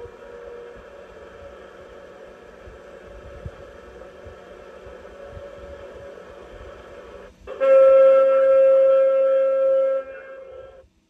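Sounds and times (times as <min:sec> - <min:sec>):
quiet recorded horn: 0:00.0 - 0:10.8
loud steady horn blast: 0:07.5 - 0:10.8.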